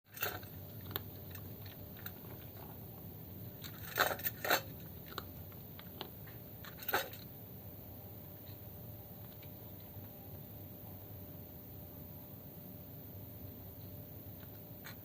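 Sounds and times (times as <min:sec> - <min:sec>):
cat crunching food: 0:00.1 - 0:07.4.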